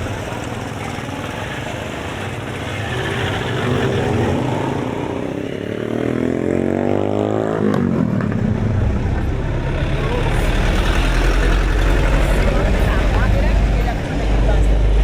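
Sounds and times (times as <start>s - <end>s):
engine revving: 0.0s - 15.0s
street traffic: 0.0s - 15.0s.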